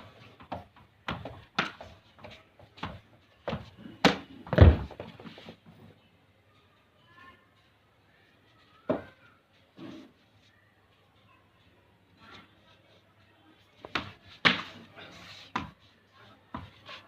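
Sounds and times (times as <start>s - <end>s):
cricket bat striking ball: 13.9s - 14.7s.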